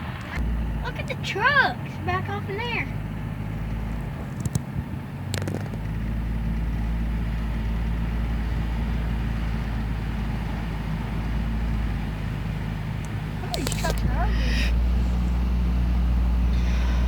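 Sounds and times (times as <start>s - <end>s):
vehicle engine rumbling: 0.0s - 17.0s
short clicks: 13.0s - 14.1s.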